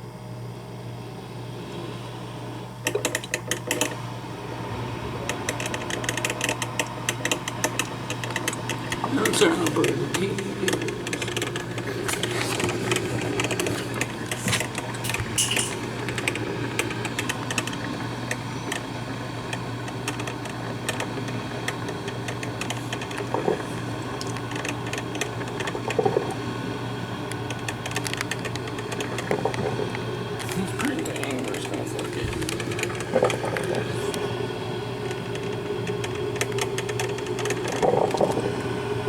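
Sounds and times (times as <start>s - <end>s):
coffee maker hum: 0.0s - 39.0s
coffee maker crackling and sputtering: 2.8s - 39.0s.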